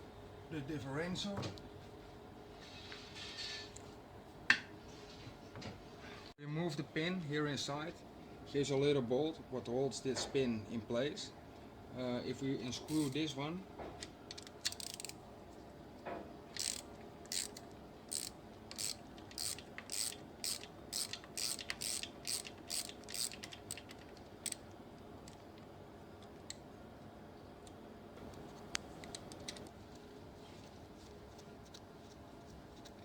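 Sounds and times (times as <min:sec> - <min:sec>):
ratchet wrench clicking: 0:14.4 - 0:15.2, 0:16.6 - 0:24.6.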